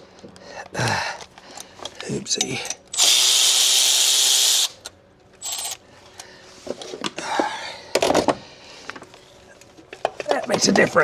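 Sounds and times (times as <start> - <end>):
cordless power tool running: 3.0 - 4.8.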